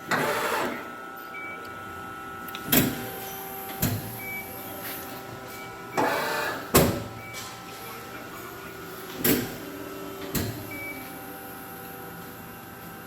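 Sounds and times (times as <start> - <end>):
hydraulic press brake humming: 0.0 - 1.0, 6.0 - 7.4.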